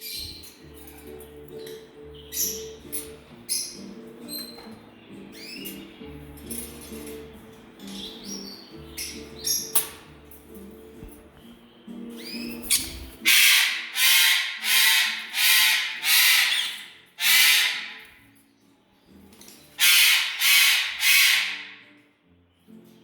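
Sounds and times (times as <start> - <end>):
bird squawking: 12.2 - 18.1, 19.8 - 21.9.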